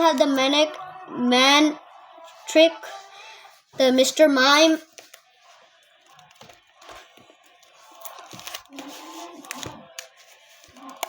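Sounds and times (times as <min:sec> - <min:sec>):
pages rustling: 0:04.9 - 0:11.0
plastic sleeves clicking: 0:06.1 - 0:11.0.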